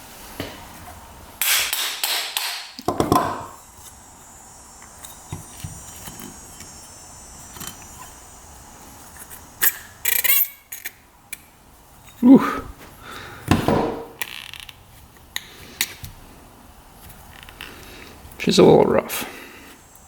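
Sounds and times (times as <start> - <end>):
tools and metal parts clicking: 9.2 - 11.0.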